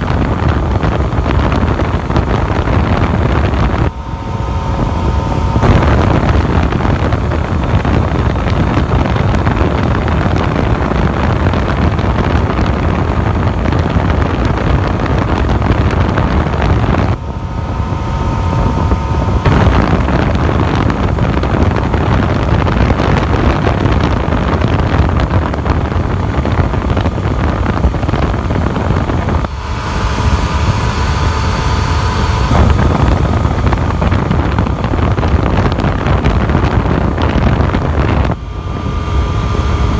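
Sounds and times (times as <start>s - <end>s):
motorcycle engine hum: 0.0s - 39.9s
wind rushing over microphone: 0.0s - 39.9s.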